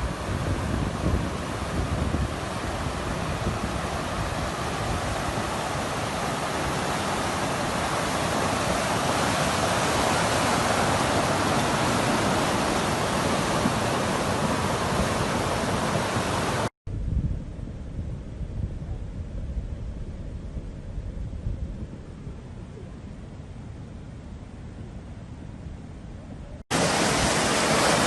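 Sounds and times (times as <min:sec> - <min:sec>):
floodwater rushing: 0:00.0 - 0:16.7, 0:26.7 - 0:28.0.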